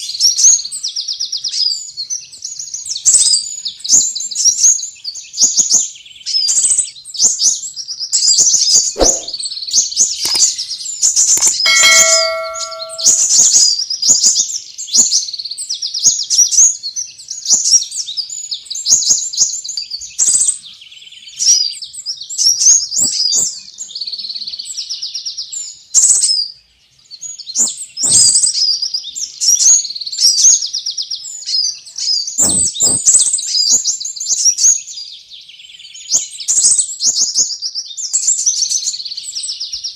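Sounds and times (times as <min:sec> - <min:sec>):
brief ringing tone: 0:11.6 - 0:13.3.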